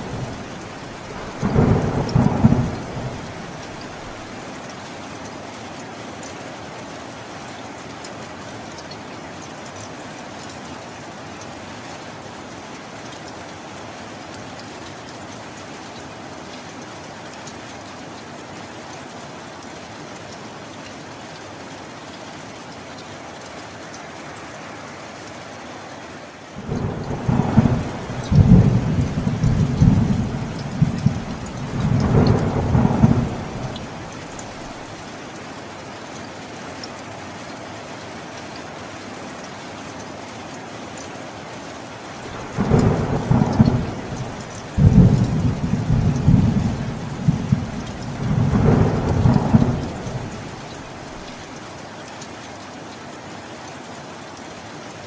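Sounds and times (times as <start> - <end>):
thunder rumbling: 0.0 - 4.3, 26.6 - 34.9, 42.3 - 51.4
steady rain falling: 0.0 - 55.0.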